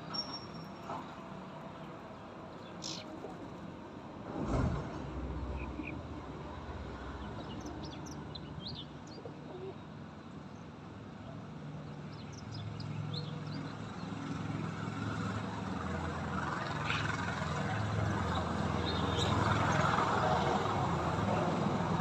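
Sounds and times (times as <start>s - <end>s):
birds chirping: 2.5s - 3.5s.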